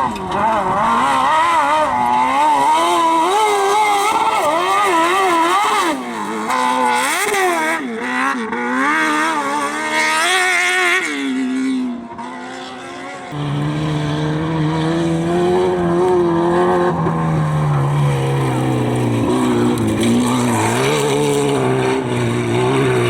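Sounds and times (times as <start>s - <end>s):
lower steady engine note: 13.1s - 23.0s
engine revving hard: 13.3s - 23.0s.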